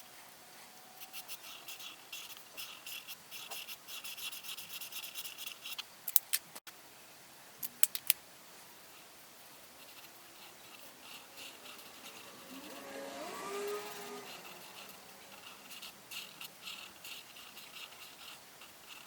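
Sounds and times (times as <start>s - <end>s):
coloring tool scratching paper: 1.0s - 5.8s, 9.0s - 19.0s
sharp clicks: 7.6s - 8.2s.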